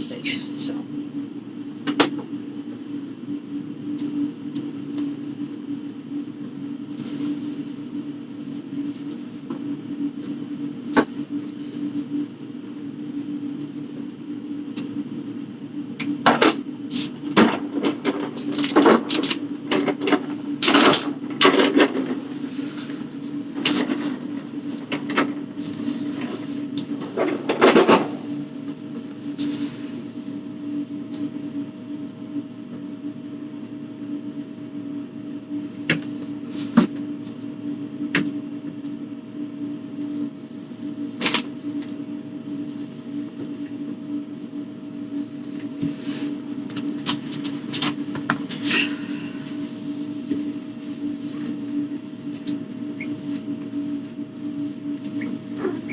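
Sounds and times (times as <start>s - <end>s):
steady low hum: 0.0s - 55.9s
plastic and cardboard rustling: 6.9s - 9.5s.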